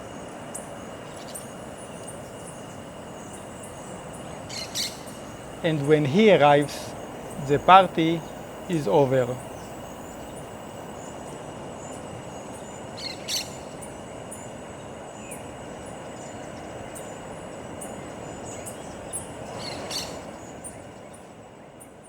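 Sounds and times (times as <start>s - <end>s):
thin insect drone: 0.0s - 20.8s
sharp bird calls: 2.1s - 10.5s, 13.0s - 13.7s, 19.5s - 20.3s.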